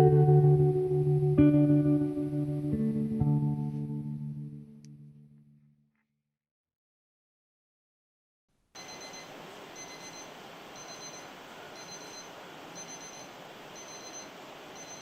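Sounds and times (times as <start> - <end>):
high electronic beep: 8.8 - 15.0
steady hiss: 8.8 - 15.0.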